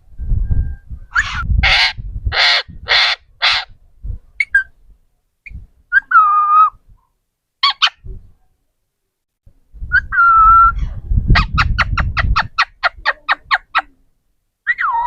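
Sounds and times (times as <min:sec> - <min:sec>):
parrot squawking: 0:01.1 - 0:03.7, 0:07.6 - 0:08.0
parrot chirps: 0:07.6 - 0:08.0.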